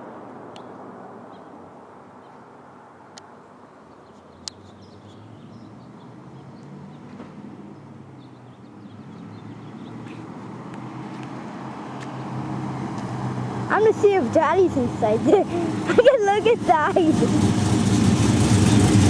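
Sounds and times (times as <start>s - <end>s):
distant car engine rumble: 5.4s - 19.0s.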